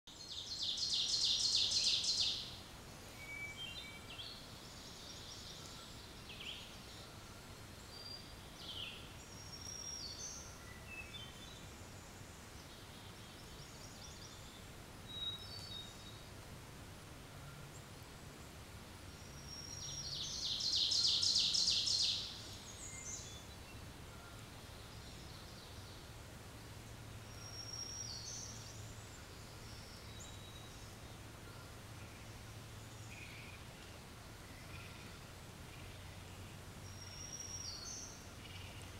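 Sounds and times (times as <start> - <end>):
bird trilling song: 0.1 - 2.5, 19.2 - 26.0, 27.3 - 32.3, 36.8 - 38.9.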